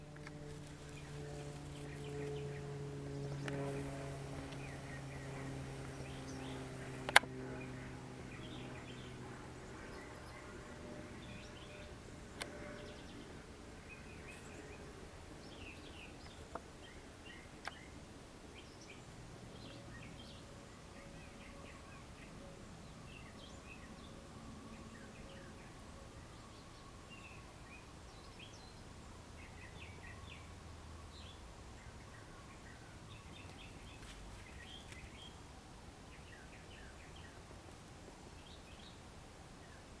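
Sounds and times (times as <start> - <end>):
steady background noise: 0.0 - 40.0.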